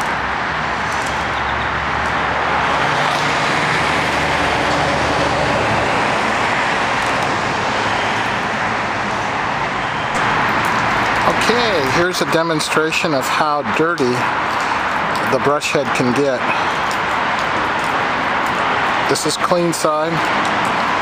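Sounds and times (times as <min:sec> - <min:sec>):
passing vehicle engine hum: 0:00.0 - 0:12.5
heavy freeway traffic: 0:00.0 - 0:21.0.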